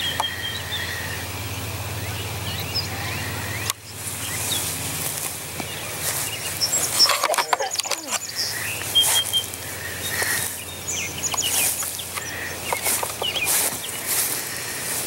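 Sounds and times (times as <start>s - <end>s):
birds chirping: 0.0s - 15.0s
rustling noise: 4.0s - 10.6s, 11.4s - 15.0s.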